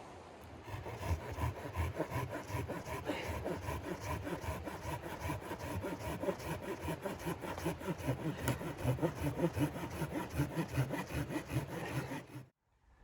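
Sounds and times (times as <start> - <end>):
hand saw cutting wood: 0.4 - 12.5.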